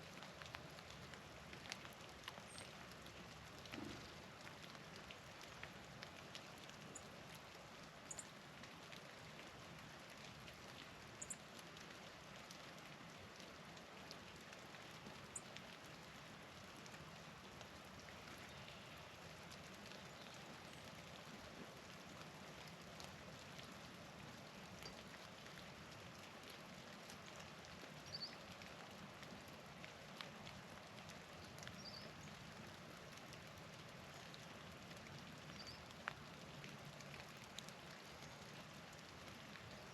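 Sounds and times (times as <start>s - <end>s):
light ticks: 35.0s - 39.7s.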